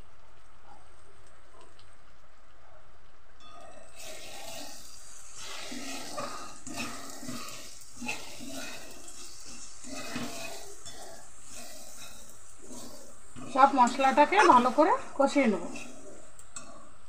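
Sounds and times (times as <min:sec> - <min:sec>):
masala sizzling in oil: 0:00.0 - 0:17.0
spatula scraping pan: 0:04.0 - 0:16.9.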